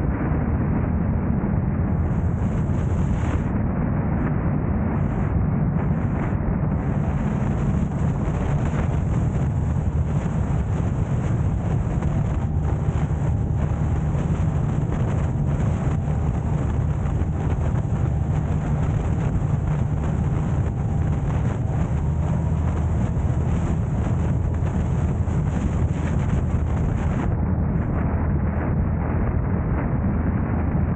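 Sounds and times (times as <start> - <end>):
car driving rumble: 6.7 - 27.4.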